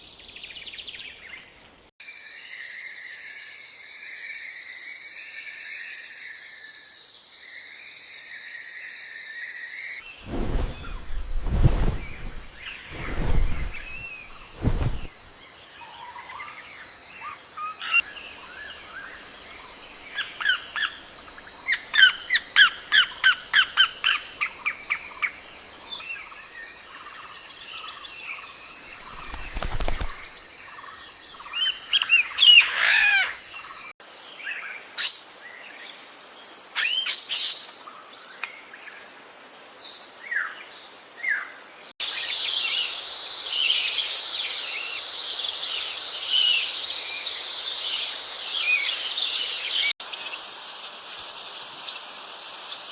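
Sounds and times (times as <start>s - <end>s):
forest birds chirping: 0.0s - 52.9s
low thuds: 10.3s - 15.3s.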